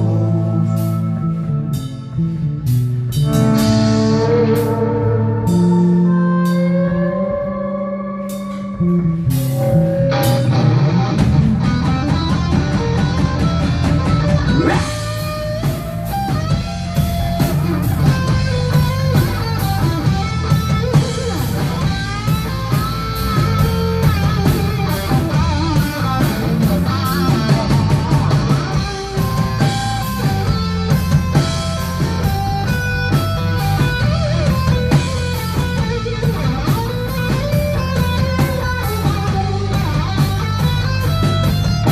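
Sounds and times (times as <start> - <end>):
electric guitar lead bending: 0.0 - 41.9
rock band playing instrumental: 0.0 - 41.9.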